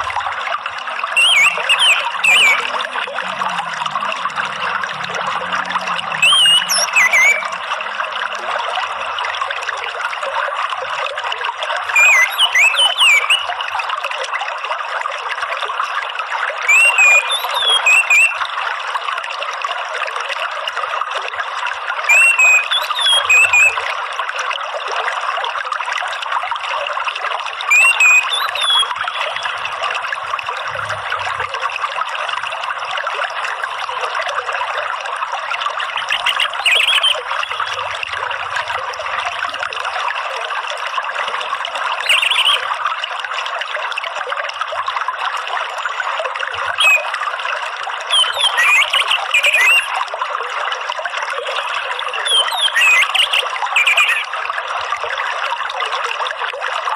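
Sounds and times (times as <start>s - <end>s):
trickling water: 0.0s - 56.9s
thrush whistling: 1.2s - 2.9s, 6.2s - 7.6s, 27.7s - 29.5s.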